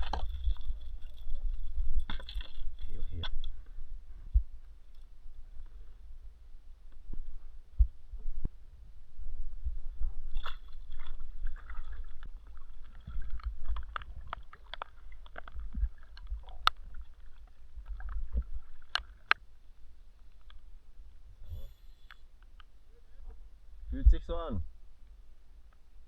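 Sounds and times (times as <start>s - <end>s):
low rumble: 0.0s - 14.2s.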